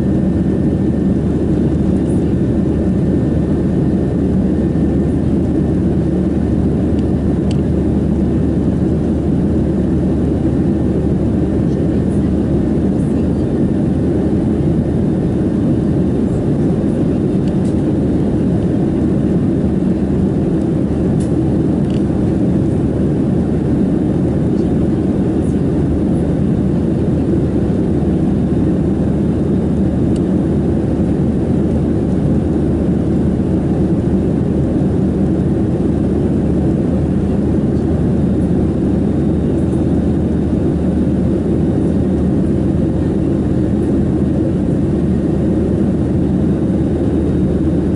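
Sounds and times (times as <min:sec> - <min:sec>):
airflow over fuselage: 0:00.0 - 0:47.9
jet engine drone: 0:00.0 - 0:47.9.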